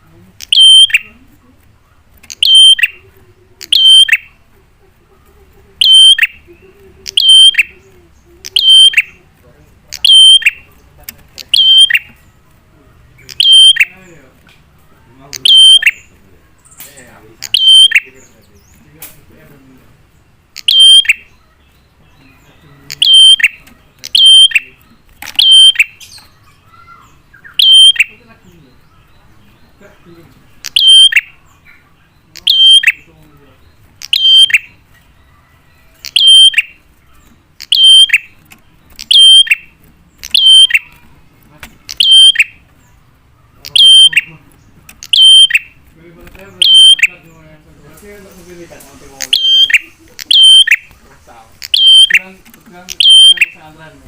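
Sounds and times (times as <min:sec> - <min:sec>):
bird lure call: 0:00.4 - 0:01.2, 0:02.2 - 0:04.4, 0:05.8 - 0:09.2, 0:09.9 - 0:10.7, 0:11.4 - 0:12.2, 0:13.3 - 0:14.0, 0:15.3 - 0:16.1, 0:16.7 - 0:18.2, 0:20.6 - 0:21.4, 0:22.9 - 0:28.3, 0:30.6 - 0:31.5, 0:32.3 - 0:33.1, 0:34.0 - 0:34.8, 0:36.0 - 0:41.1, 0:41.9 - 0:42.7, 0:43.6 - 0:45.8, 0:46.5 - 0:47.3, 0:49.2 - 0:51.0, 0:51.6 - 0:52.3, 0:52.9 - 0:53.6.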